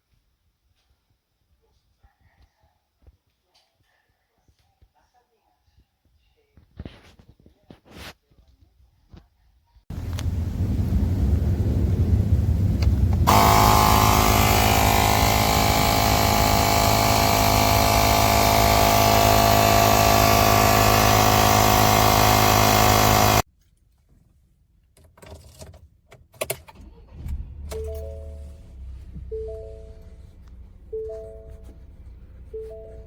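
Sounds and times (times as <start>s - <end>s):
buzzing drone: 9.9s - 23.4s
motor low rumble: 9.9s - 23.4s.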